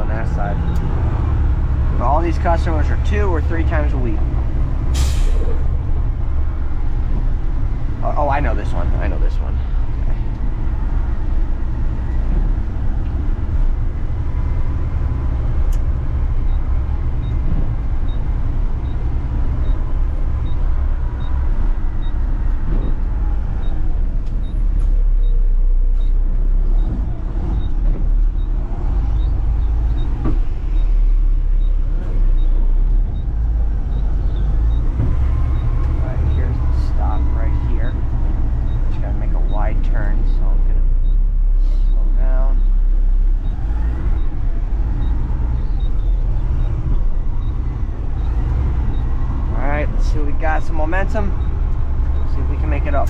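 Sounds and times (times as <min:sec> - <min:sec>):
truck engine rumbling: 0:00.0 - 0:53.0.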